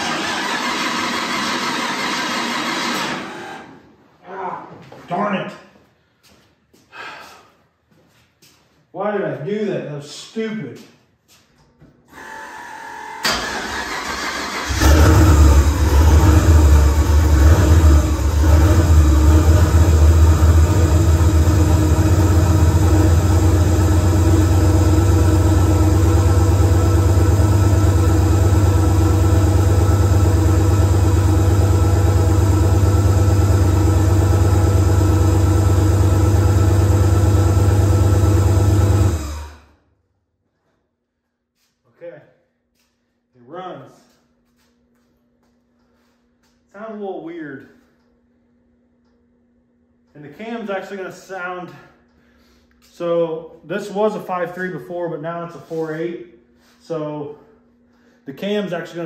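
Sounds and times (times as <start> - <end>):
starter motor cranking: 0.0 - 3.7
engine running and idling: 13.4 - 39.6.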